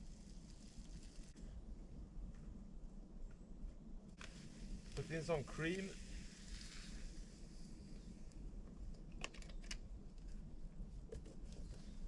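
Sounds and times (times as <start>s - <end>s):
soft hiss in a pan: 0.0s - 1.4s, 4.2s - 8.4s.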